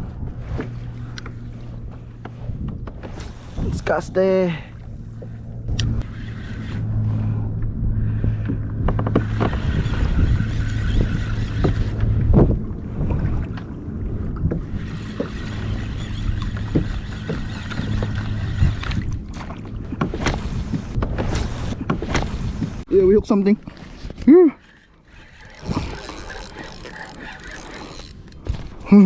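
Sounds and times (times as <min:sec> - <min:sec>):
steady low hum: 0:00.0 - 0:22.9
water splashing against hull: 0:00.0 - 0:22.9, 0:23.5 - 0:28.9.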